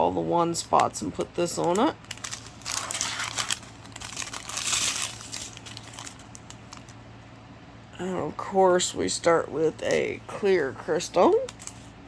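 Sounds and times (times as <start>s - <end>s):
plastic bags crinkling: 0.6s - 7.0s, 11.3s - 11.9s.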